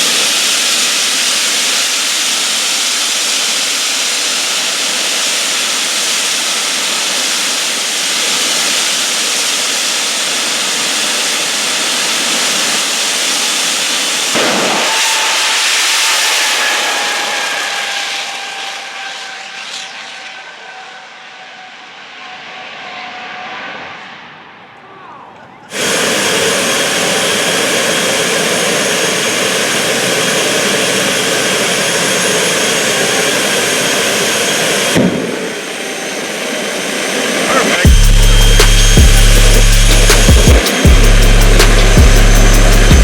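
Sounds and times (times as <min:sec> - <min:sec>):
falling whistling whine: 0:00.0 - 0:43.0
jet engine roaring: 0:00.0 - 0:43.0
sudden burst: 0:14.0 - 0:20.7, 0:37.5 - 0:43.0.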